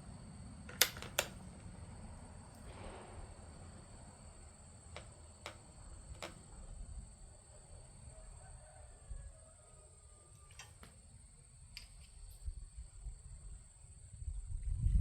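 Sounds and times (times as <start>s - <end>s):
rifle action clicking: 0.7s - 1.4s.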